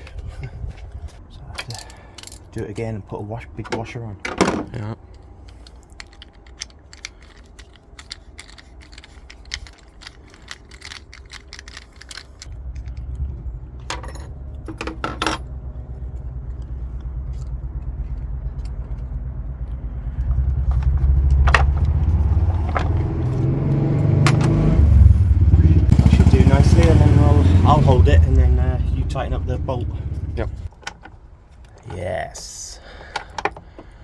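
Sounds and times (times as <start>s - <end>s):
metal tools clinking: 1.6s - 2.6s, 3.7s - 13.2s, 13.8s - 15.5s
steady low rumble: 4.7s - 30.7s.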